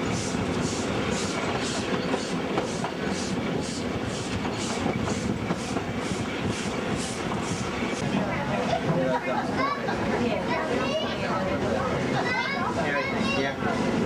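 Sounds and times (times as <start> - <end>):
carriages rumbling on track: 0.0 - 14.0
steam locomotive chuffing: 0.0 - 14.0.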